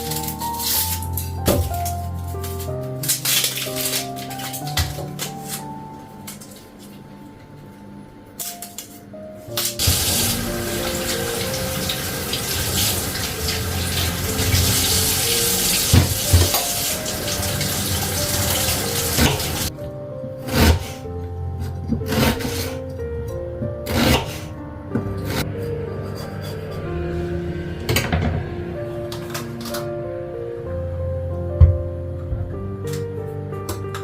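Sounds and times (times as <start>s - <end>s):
tap water running into sink: 9.8s - 19.7s.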